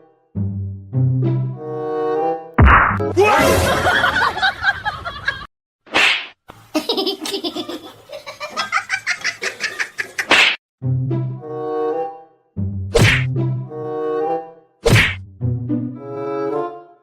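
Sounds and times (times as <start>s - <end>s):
laughter bursts: 3.6s - 5.5s, 6.7s - 10.3s.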